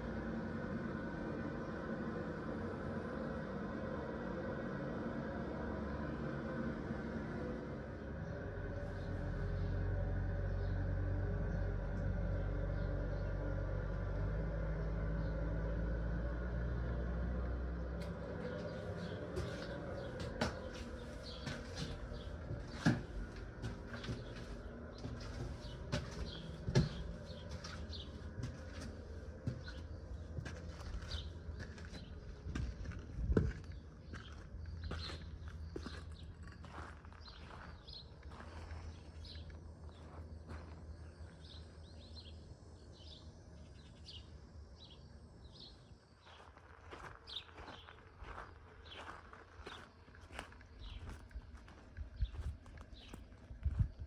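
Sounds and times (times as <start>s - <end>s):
low wind rumble: 0.0s - 42.8s, 50.7s - 54.0s
footsteps outdoors: 17.2s - 42.0s, 45.5s - 54.0s
small birds chirping: 18.0s - 54.0s.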